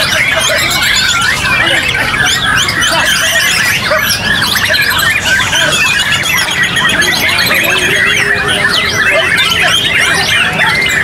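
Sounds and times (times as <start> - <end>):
birds singing: 0.0 - 11.0
low crowd murmur: 0.0 - 11.0.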